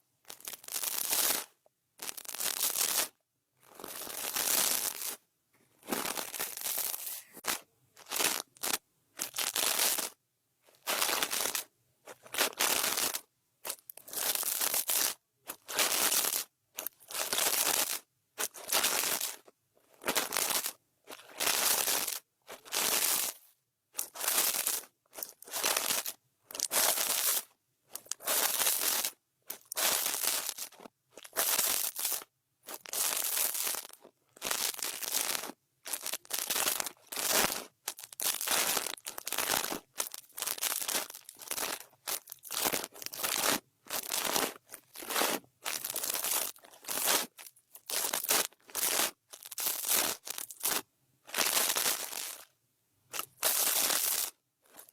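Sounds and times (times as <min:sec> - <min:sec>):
brush strokes across microphone: 0:06.9 - 0:07.4.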